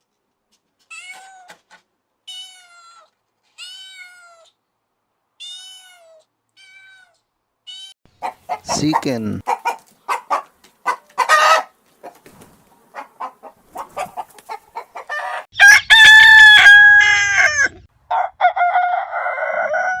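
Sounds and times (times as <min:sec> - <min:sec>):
chickens clucking: 0:08.1 - 0:15.9
rooster crowing: 0:15.0 - 0:20.0.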